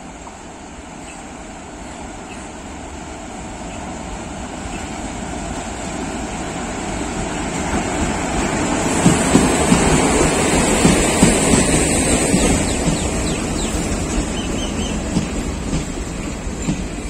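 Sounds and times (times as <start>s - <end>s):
electric train running: 4.7s - 17.0s.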